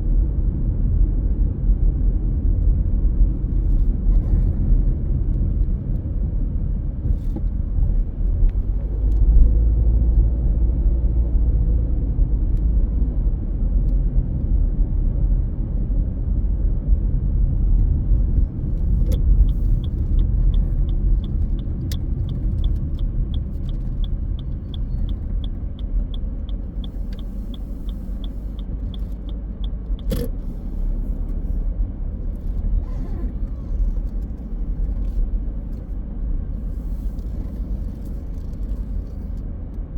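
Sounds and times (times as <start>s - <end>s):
car engine and road noise: 0.0s - 39.9s
even ticking: 18.7s - 31.0s
sharp click: 23.6s - 30.5s.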